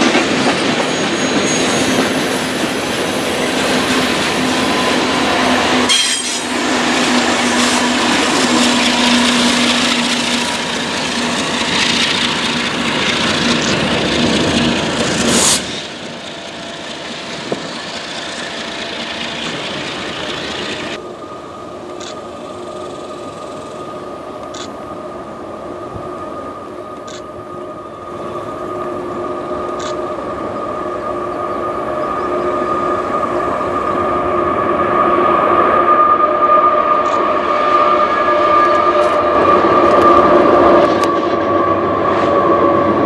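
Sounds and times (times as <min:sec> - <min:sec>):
freight train wheels on rails: 0:00.0 - 0:43.0.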